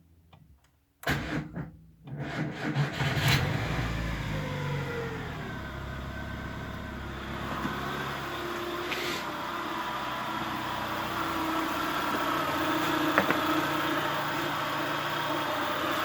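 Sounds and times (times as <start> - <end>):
car engine revving and idling: 2.2 - 16.0.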